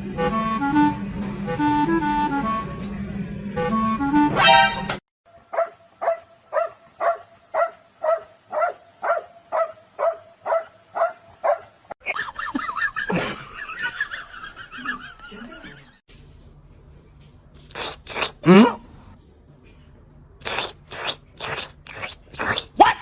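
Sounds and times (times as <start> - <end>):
dog barking: 5.5 - 11.8, 22.8 - 23.0.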